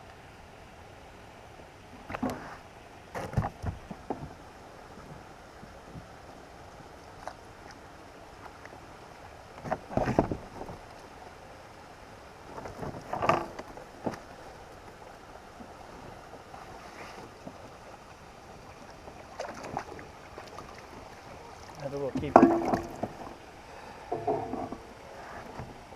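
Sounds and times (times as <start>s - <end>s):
water noise: 0.0s - 25.9s
wind: 0.0s - 25.9s
knocks and splashes from kayak gear: 3.1s - 4.4s, 9.6s - 10.8s, 12.5s - 14.3s, 19.2s - 23.4s, 24.1s - 24.8s.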